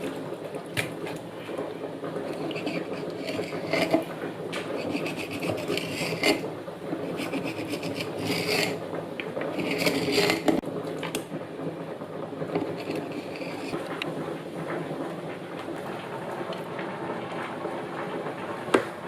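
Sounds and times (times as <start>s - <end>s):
kitchen utensil scraping: 0.8s - 8.8s, 9.4s - 10.6s, 12.5s - 13.9s.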